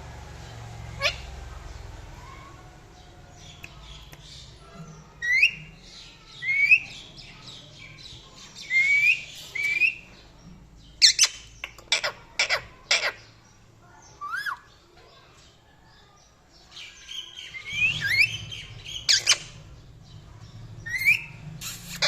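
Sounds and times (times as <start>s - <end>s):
parrot chirping calls: 0.6s - 10.2s, 11.0s - 13.4s, 14.1s - 14.8s, 16.8s - 19.8s, 20.8s - 22.0s
parrot squawking: 0.9s - 1.3s, 11.0s - 13.2s, 17.6s - 19.6s, 20.8s - 22.0s.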